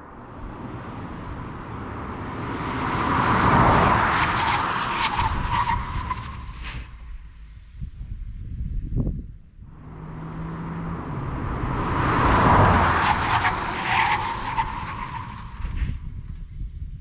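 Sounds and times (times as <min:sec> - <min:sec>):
sports car engine revving: 0:09.7 - 0:13.8.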